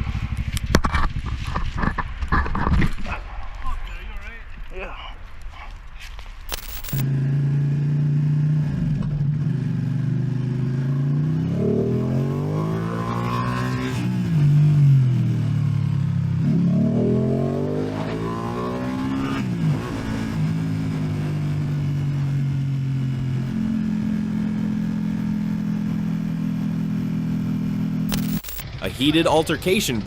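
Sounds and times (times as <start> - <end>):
motorcycle engine accelerating: 6.5 - 29.4.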